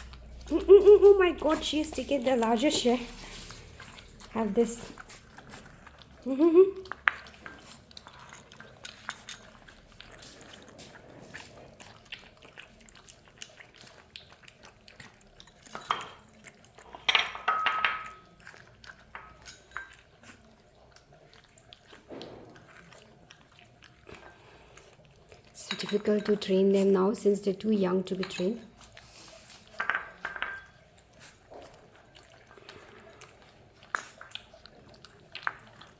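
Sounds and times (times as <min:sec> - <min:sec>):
puppies lapping milk: 0:00.0 - 0:35.9
bowls clanking: 0:17.0 - 0:18.2, 0:25.6 - 0:26.6, 0:29.7 - 0:30.8.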